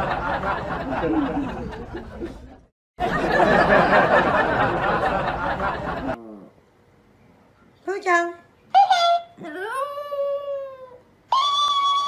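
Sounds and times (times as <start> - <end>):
people laughing: 0.0 - 6.2.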